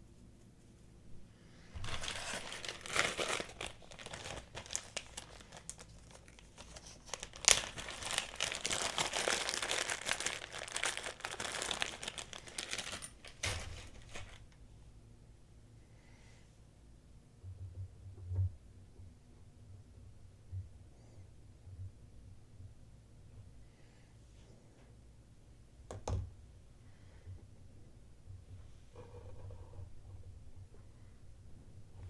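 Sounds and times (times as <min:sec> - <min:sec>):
packaging crinkling: 0:01.8 - 0:14.5.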